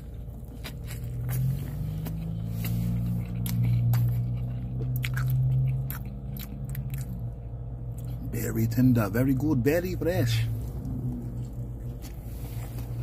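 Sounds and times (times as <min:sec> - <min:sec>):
person chewing food: 0:00.0 - 0:08.3, 0:10.6 - 0:13.0
low steady hum: 0:00.0 - 0:13.0
wet mouth clicks and smacks: 0:03.3 - 0:07.2.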